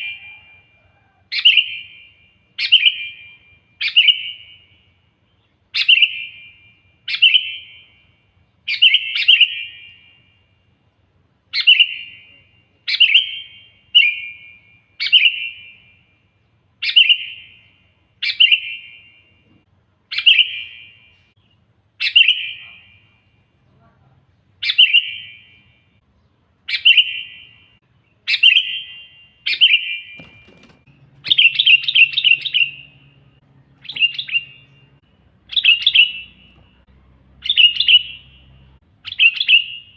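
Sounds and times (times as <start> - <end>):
bulbul bright chirps: 26.7 - 39.9.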